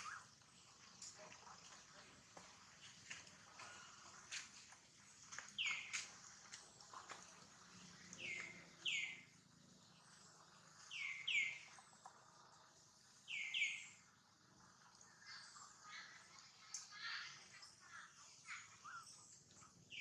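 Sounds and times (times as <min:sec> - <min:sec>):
bird chirping: 0:00.0 - 0:00.7, 0:05.3 - 0:06.2, 0:08.1 - 0:12.5, 0:13.2 - 0:14.0, 0:16.7 - 0:20.0
faint outdoor background noise: 0:00.0 - 0:20.0.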